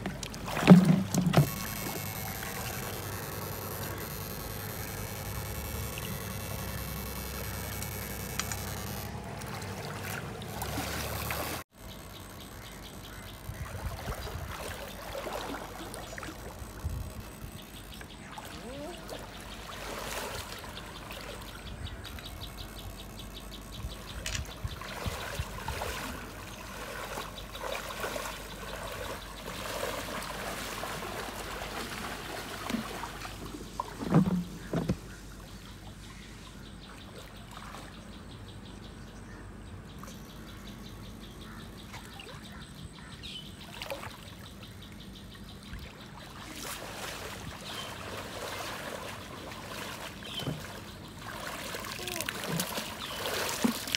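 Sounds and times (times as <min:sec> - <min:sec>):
shallow water sloshing: 0:00.0 - 0:06.8, 0:08.4 - 0:11.6, 0:13.6 - 0:16.8, 0:24.5 - 0:35.2, 0:46.0 - 0:53.9
small knocks: 0:34.0 - 0:35.1.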